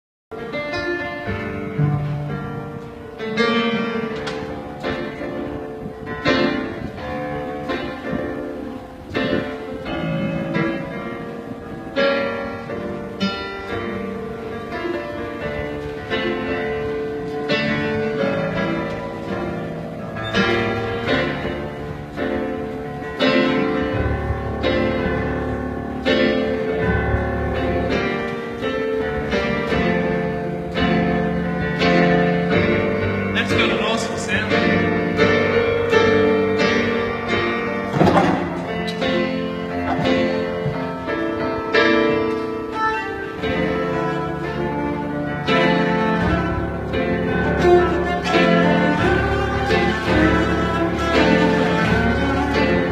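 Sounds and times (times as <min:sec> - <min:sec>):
cello playing: 0:12.6 - 0:52.9
plucked-string accompaniment: 0:24.5 - 0:52.9.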